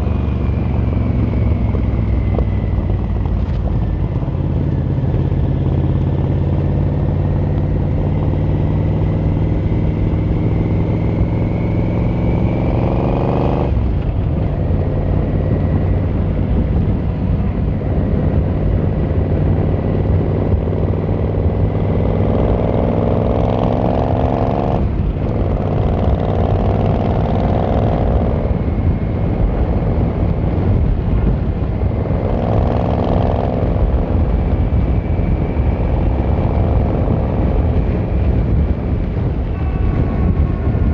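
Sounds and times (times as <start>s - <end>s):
motorcycle engine accelerating: 0.0s - 40.9s
road and wind noise: 0.0s - 40.9s.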